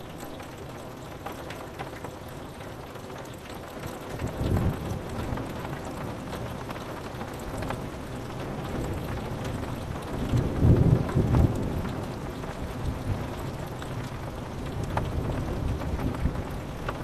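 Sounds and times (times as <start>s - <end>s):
rain pattering on a window: 0.0s - 17.0s
thunder rumbling: 7.5s - 17.0s.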